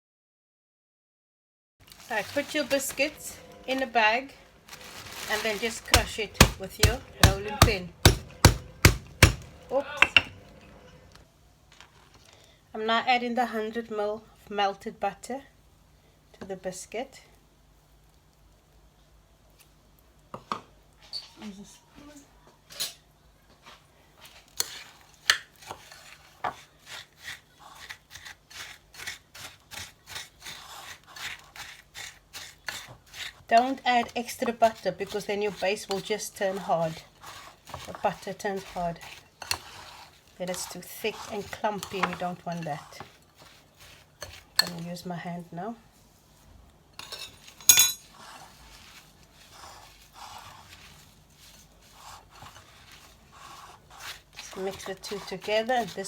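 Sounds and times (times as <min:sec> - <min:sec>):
spoon scraping crumbs in a bowl: 0:24.2 - 0:45.1, 0:47.0 - 0:56.0
utensil clink: 0:47.0 - 0:48.1.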